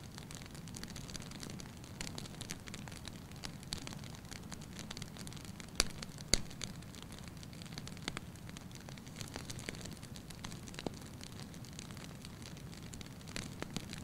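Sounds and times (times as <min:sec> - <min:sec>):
low rumble of flames: 0:00.0 - 0:14.0
wood fire crackling: 0:00.0 - 0:14.0
sharp loud pops of fire: 0:05.8 - 0:06.7.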